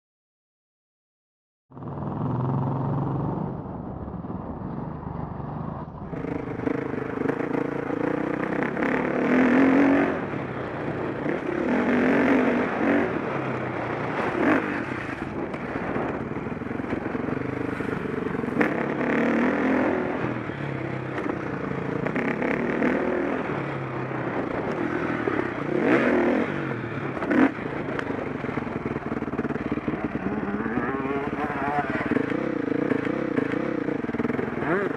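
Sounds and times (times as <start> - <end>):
motorbike engine revving: 1.8 - 3.6, 5.5 - 34.9.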